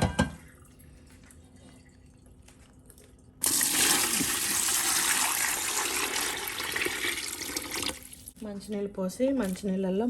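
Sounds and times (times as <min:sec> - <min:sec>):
water pouring into washing machine: 0:03.4 - 0:08.3.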